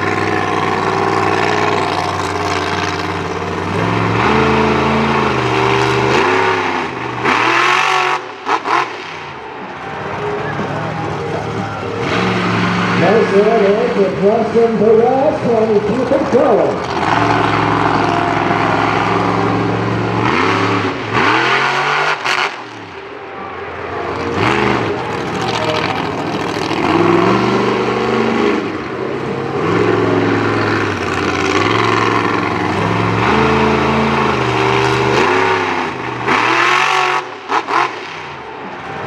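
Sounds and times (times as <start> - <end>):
truck engine revving: 0.0 - 39.0.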